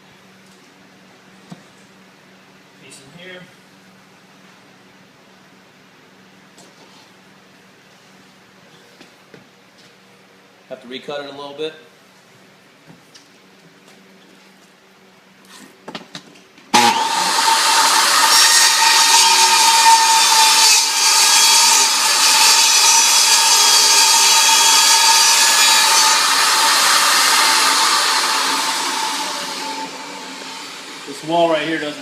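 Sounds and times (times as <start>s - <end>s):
table saw cutting plank: 16.7s - 32.0s.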